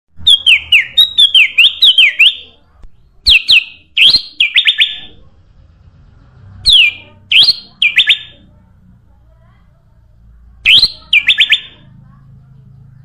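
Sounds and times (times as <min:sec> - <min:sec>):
bird chirping song: 0:00.2 - 0:05.2, 0:06.6 - 0:08.4, 0:10.6 - 0:13.0.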